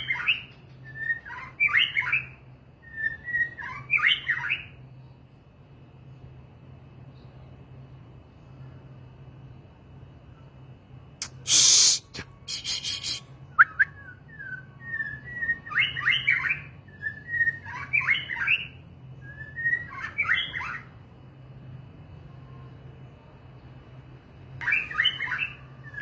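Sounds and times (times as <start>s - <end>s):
songbird whistled phrases: 0.0s - 4.8s, 11.2s - 20.9s, 24.6s - 26.0s
songbird harsh rasping notes: 11.2s - 13.3s.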